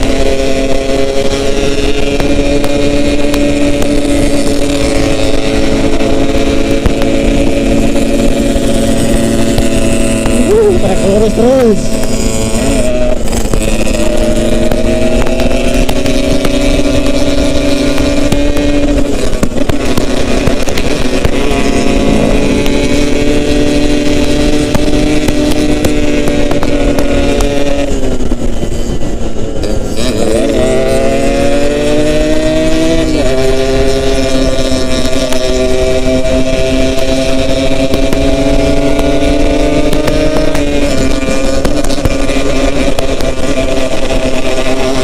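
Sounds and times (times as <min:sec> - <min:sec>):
motorcycle two-stroke engine revving: 0:00.0 - 0:45.0.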